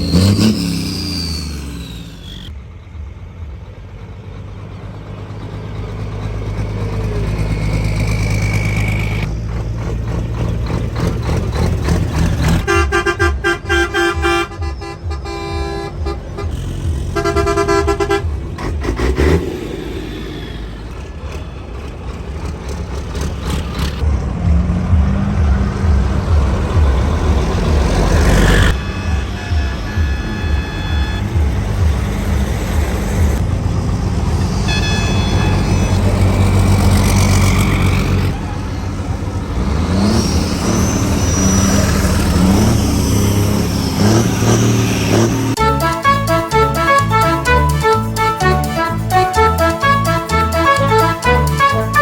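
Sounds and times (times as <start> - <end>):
heavy diesel truck engines: 0.0 - 52.0
truck horn blasts: 12.4 - 19.6, 27.9 - 33.3, 34.3 - 38.7, 40.0 - 52.0.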